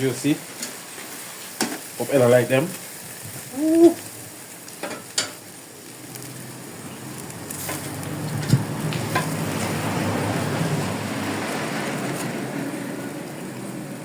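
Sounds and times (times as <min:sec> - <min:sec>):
food sizzling on a grill: 0:00.0 - 0:14.0.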